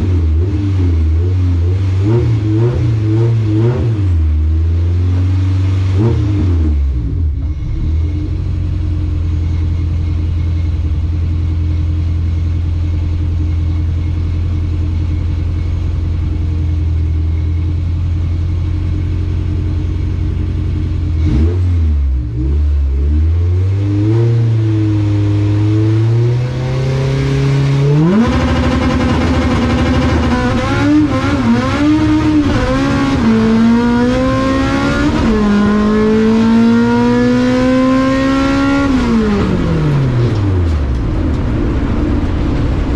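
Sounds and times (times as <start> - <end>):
race car engine idling and revving: 0.0 - 42.9
race car accelerating hard: 21.2 - 42.9.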